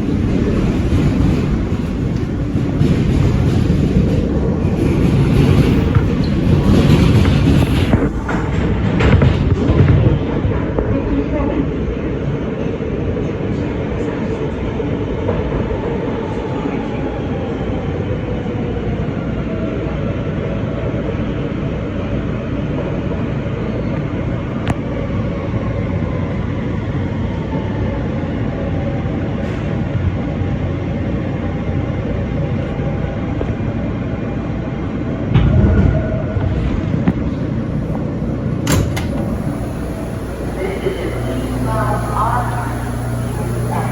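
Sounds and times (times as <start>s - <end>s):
subway train wheels rumbling: 0.0s - 43.9s
motor tones gliding down: 37.5s - 43.9s.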